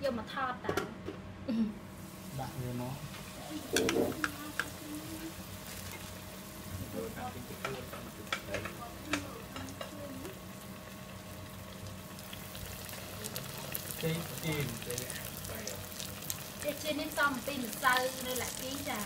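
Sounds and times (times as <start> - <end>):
food deep-frying in oil: 1.9 - 19.0
oil crackling and popping: 7.6 - 19.0.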